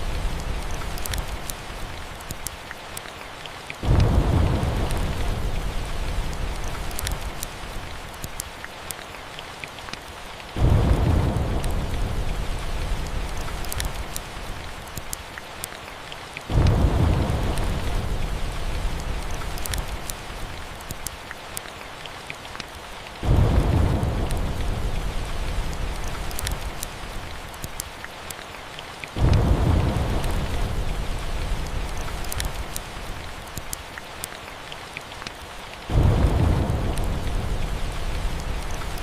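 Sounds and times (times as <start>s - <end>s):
log fire crackling: 0.0s - 39.0s
steady rain: 0.0s - 39.0s
thunder rolling: 3.8s - 6.7s, 10.6s - 13.5s, 16.5s - 19.4s, 23.2s - 26.2s, 29.2s - 32.2s, 35.9s - 39.0s.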